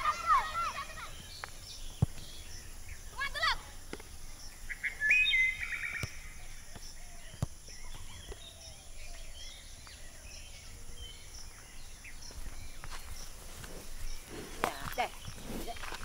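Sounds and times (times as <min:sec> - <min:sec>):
whistled bird call: 0:04.7 - 0:06.6.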